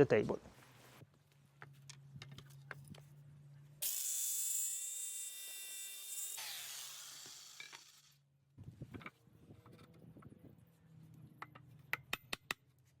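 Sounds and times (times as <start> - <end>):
power tool cutting wood: 3.8 - 8.2.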